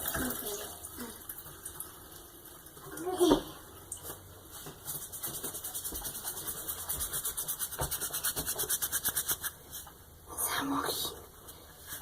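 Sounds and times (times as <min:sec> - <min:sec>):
rapid rhythmic scratching: 0:05.0 - 0:09.6.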